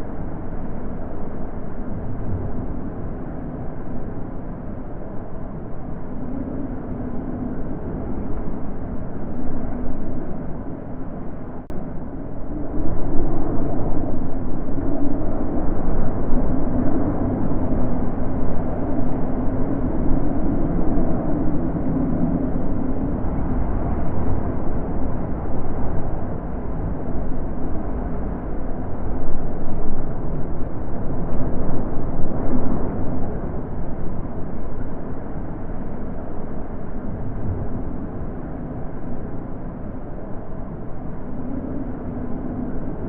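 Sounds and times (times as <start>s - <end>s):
wind blowing: 0.0s - 43.0s.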